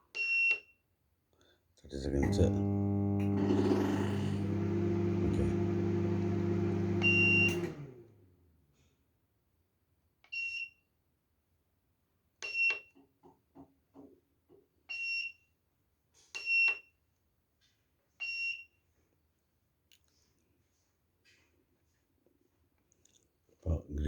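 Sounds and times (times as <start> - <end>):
microwave buzzer beeps: 2.2 - 8.0
microwave oven humming: 2.2 - 8.3.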